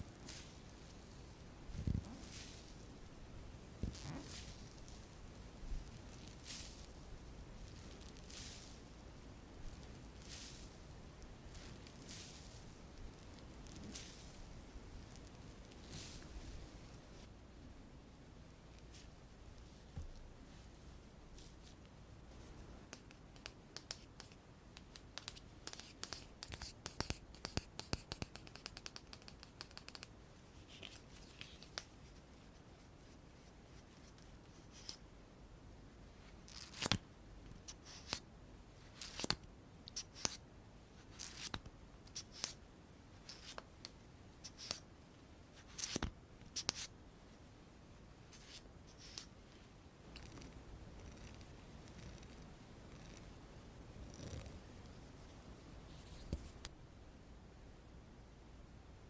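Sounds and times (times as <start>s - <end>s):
small clicks and taps: 22.9s - 30.2s.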